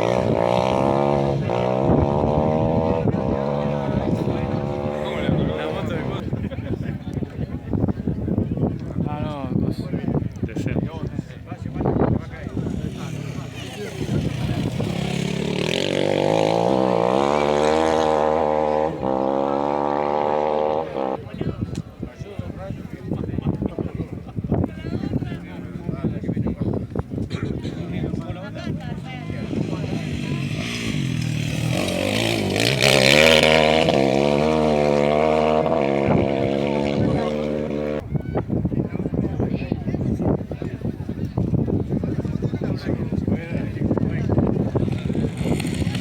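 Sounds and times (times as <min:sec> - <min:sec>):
rally car engine revving: 0:00.0 - 0:06.2, 0:13.0 - 0:21.2, 0:28.7 - 0:38.0.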